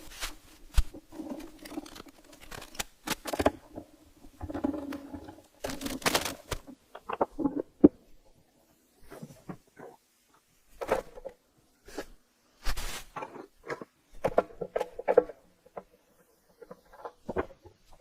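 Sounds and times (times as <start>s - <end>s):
tools and parts clicking and scraping: 0.0s - 3.8s.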